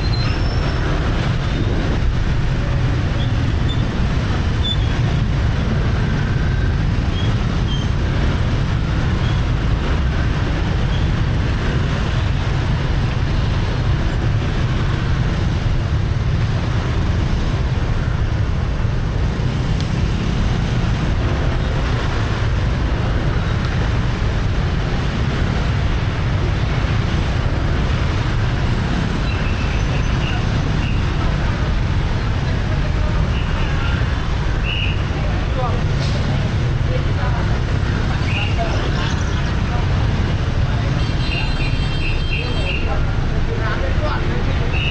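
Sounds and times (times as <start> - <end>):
street traffic rumble: 0.0 - 44.9.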